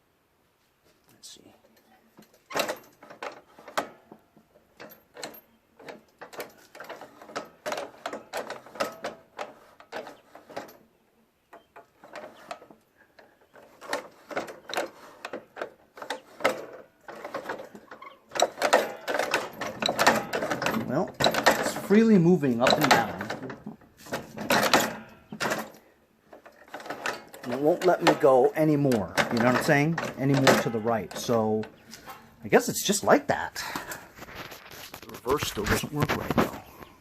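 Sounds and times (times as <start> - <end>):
metal linkage clicking and rattling: 2.2 - 10.8, 11.5 - 36.6.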